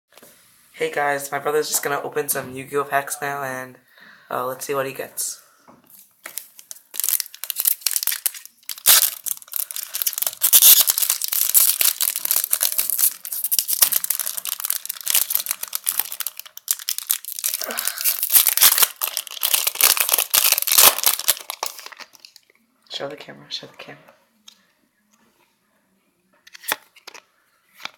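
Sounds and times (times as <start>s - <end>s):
foil wrappers tearing and crinkling: 6.2s - 22.4s.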